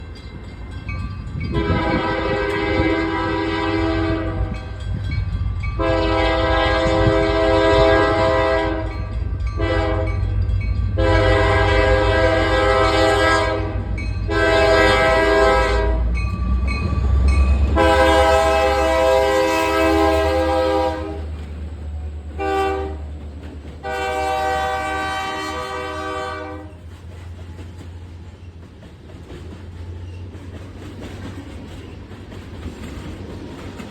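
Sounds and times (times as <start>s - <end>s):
locomotive horn: 1.5s - 4.6s, 5.8s - 9.0s, 9.6s - 10.2s, 10.9s - 16.2s, 16.9s - 21.4s, 22.4s - 23.2s, 23.8s - 26.8s.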